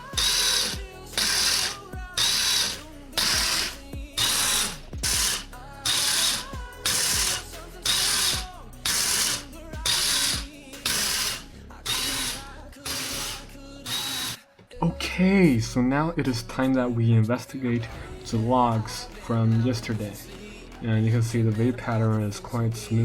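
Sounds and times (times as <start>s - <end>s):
gear motor whirring: 0.0s - 14.4s.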